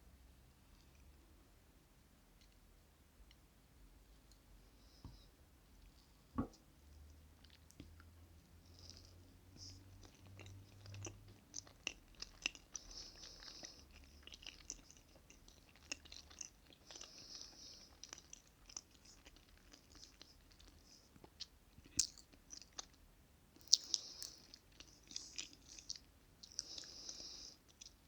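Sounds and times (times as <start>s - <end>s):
chewing cake: 6.9s - 28.0s.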